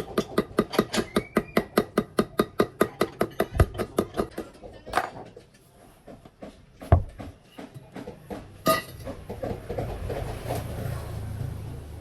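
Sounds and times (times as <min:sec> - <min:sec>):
engine rumbling: 0:08.4 - 0:12.0.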